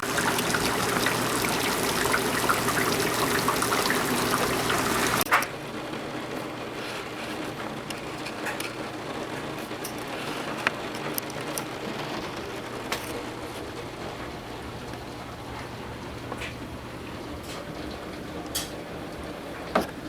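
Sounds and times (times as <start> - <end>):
torrential rain: 0.0 - 5.3.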